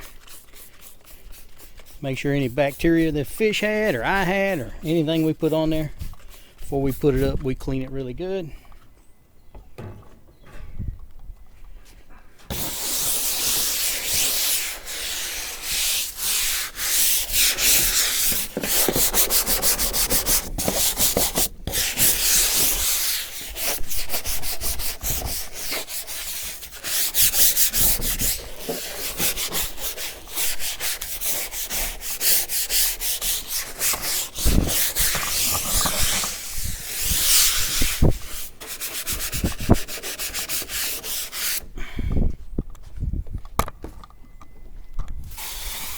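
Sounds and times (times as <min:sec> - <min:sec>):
disinfectant spray: 0:12.5 - 0:18.3, 0:45.3 - 0:45.9
table surface being scrubbed: 0:12.5 - 0:41.6.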